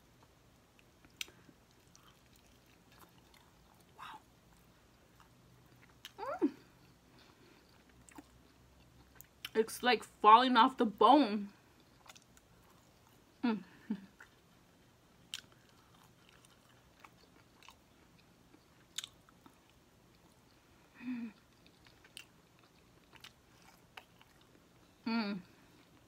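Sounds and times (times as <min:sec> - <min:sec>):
chewing chicken: 0:00.2 - 0:06.2, 0:06.8 - 0:09.6, 0:11.6 - 0:13.4, 0:14.0 - 0:20.6, 0:21.3 - 0:24.9
person humming mmm: 0:06.2 - 0:06.8.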